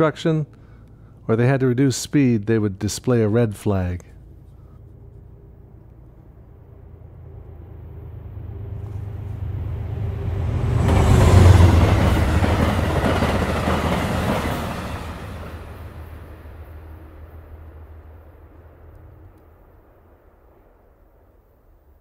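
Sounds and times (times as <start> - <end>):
passenger train passing: 3.7 - 21.3.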